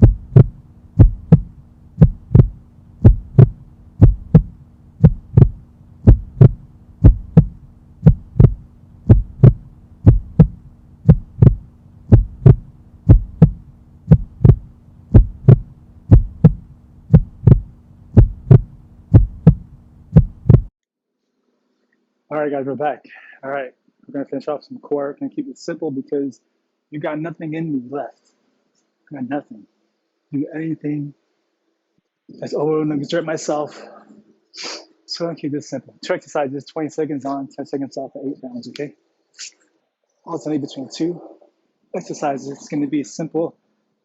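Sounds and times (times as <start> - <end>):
heartbeat thumps: 0.0 - 20.7
low steady hum: 0.0 - 20.7.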